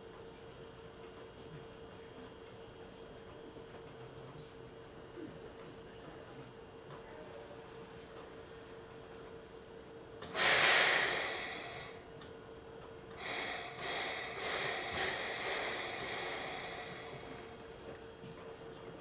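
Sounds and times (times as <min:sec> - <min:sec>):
compressed air hissing: 0:10.2 - 0:12.0, 0:13.2 - 0:17.6
steady hum: 0:10.2 - 0:18.4.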